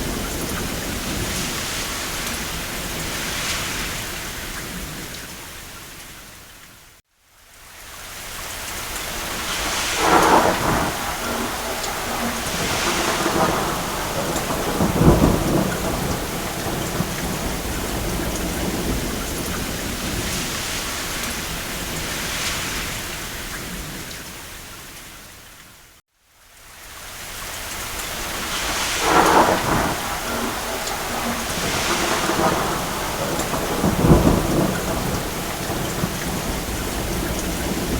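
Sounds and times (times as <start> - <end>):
steady rain: 0.0 - 37.9
distant thunder rolling: 9.2 - 24.1, 28.1 - 37.9.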